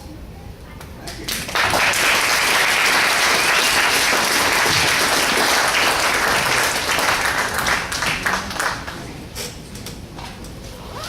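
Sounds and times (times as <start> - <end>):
congregation applauding: 1.1 - 9.2.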